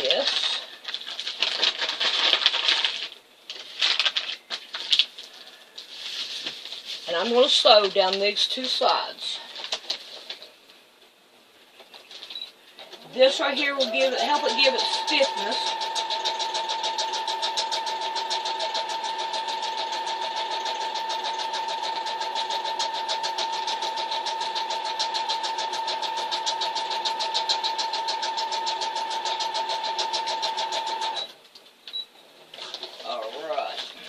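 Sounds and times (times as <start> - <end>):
sewing machine stitching: 13.1 - 31.3.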